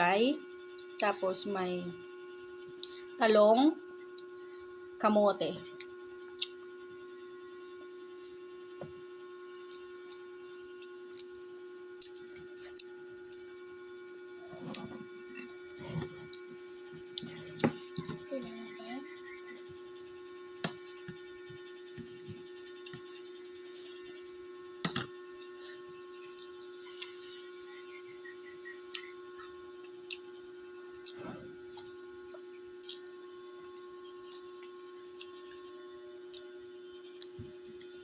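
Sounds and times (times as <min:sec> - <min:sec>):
steady hum: 0:00.0 - 0:38.0
chewing and mouth smacks: 0:06.3 - 0:06.7, 0:30.0 - 0:31.2, 0:31.8 - 0:35.6, 0:36.3 - 0:36.6.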